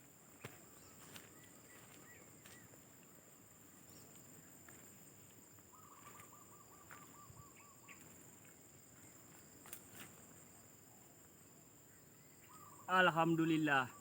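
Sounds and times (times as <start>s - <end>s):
distant birds chirping: 0.0s - 14.0s.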